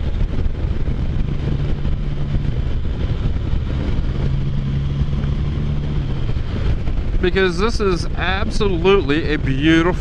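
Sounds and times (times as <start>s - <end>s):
motorcycle engine cruising: 0.0s - 10.0s
wind and road noise: 0.0s - 10.0s.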